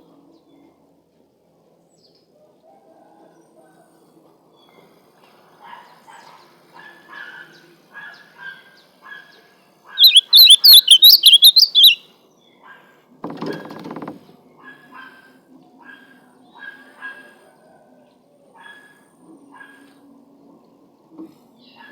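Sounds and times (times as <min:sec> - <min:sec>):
bird singing warbled phrase: 0:10.0 - 0:12.0
faint short bird calls: 0:10.0 - 0:12.0.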